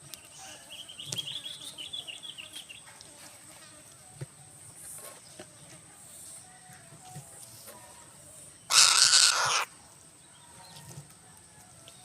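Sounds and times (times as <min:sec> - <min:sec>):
falcon chattering calls: 0:08.7 - 0:09.7.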